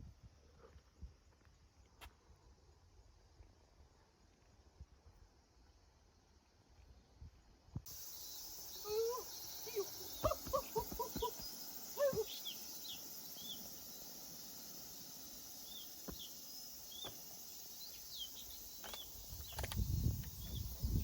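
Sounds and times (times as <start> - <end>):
insects buzzing: 5.3 - 21.0
bird chirping: 7.9 - 21.0.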